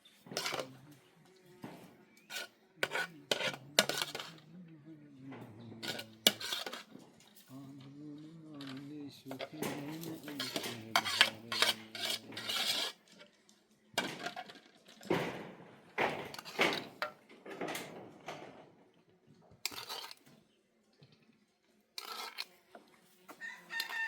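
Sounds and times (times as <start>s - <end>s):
pots and dishes clattering: 0.1s - 0.8s, 1.7s - 4.4s, 5.4s - 7.5s, 8.6s - 13.0s, 14.0s - 18.8s, 19.6s - 20.2s.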